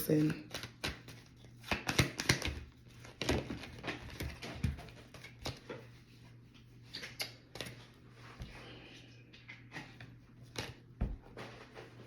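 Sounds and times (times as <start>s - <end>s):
cards being shuffled: 0.1s - 6.0s.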